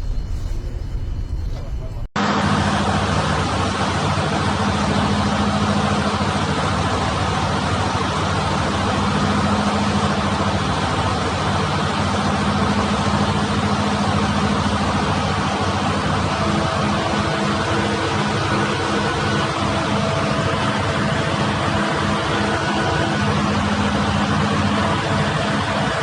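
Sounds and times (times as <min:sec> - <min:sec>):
boat engine humming: 0:00.0 - 0:26.0
rushing noise: 0:14.7 - 0:26.0.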